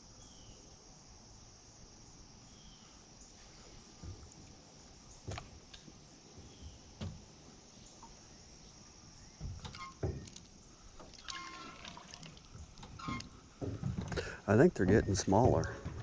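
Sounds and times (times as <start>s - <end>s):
steady high hiss: 0.0s - 16.0s
fishing gear knocking in boat: 12.6s - 16.0s.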